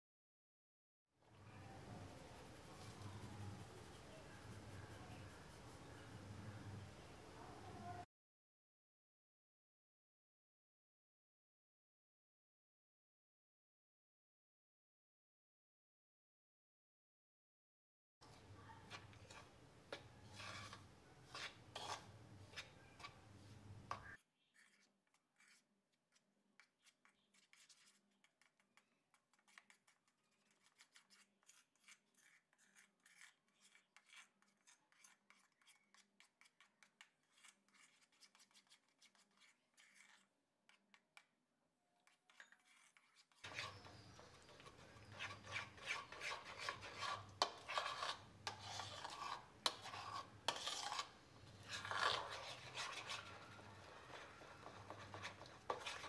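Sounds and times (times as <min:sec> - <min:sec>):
metal spoon scraping bowl: 0:01.4 - 0:06.8, 0:18.2 - 0:41.0, 0:42.0 - 0:56.0.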